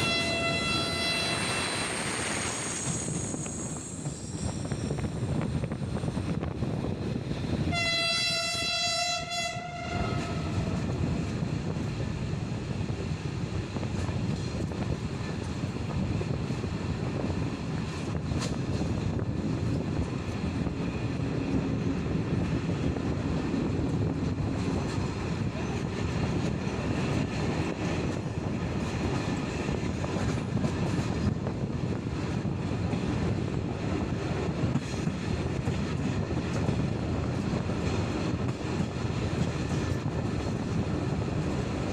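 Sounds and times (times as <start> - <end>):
locomotive horn: 0.0 - 1.8, 7.7 - 10.9
train carriages rolling on track: 0.0 - 8.8, 10.0 - 41.9.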